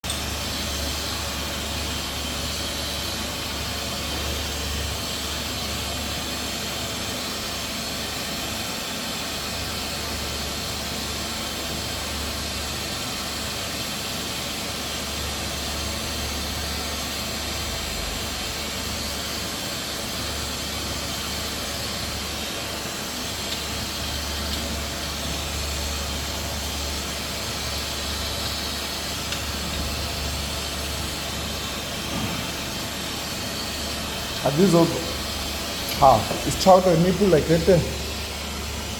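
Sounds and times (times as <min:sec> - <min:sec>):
steady hiss: 0:24.8 - 0:38.9.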